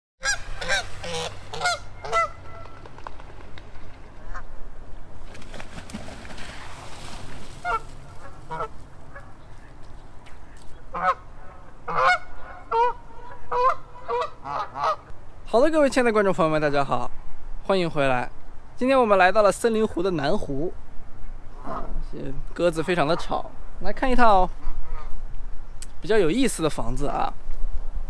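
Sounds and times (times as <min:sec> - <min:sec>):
geese honking: 0:00.2 - 0:02.9, 0:07.6 - 0:09.8, 0:10.5 - 0:15.1.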